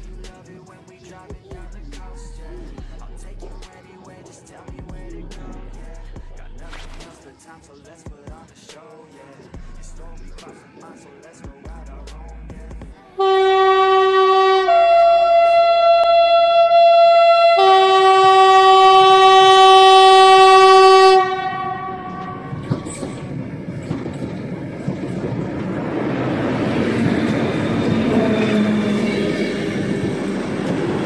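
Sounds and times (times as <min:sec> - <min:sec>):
two-tone locomotive horn: 0:13.1 - 0:23.2, 0:27.4 - 0:31.0
train rumbling on rails: 0:13.7 - 0:31.0.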